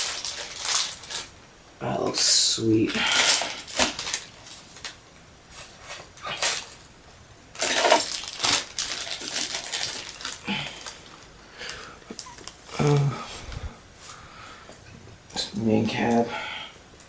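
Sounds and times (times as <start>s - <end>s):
packaging rustling: 0.0s - 1.4s, 2.9s - 5.0s, 7.5s - 13.6s.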